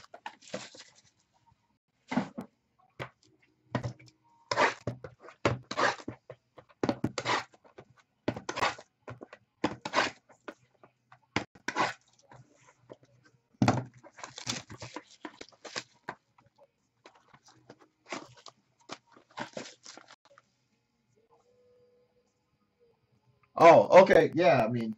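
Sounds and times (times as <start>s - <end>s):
card packaging crinkling: 0.1s - 1.1s, 14.2s - 16.0s, 18.1s - 20.2s.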